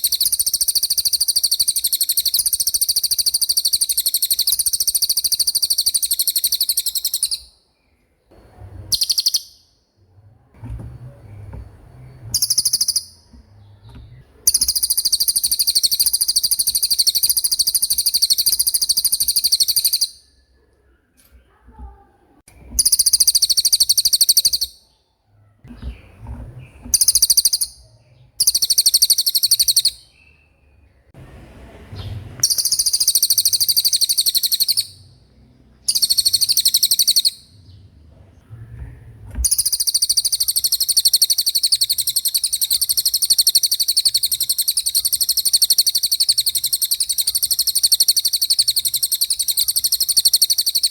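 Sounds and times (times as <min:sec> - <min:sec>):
songbird singing rapid trills: 0:00.0 - 0:07.6, 0:08.9 - 0:09.8, 0:12.0 - 0:20.4, 0:22.8 - 0:25.0, 0:26.9 - 0:31.2, 0:32.0 - 0:35.2, 0:35.8 - 0:37.9, 0:39.4 - 0:50.9.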